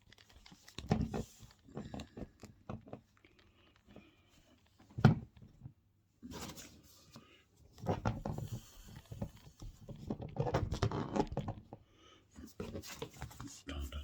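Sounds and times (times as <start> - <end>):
paper rustling and crinkling: 0.0 - 4.8.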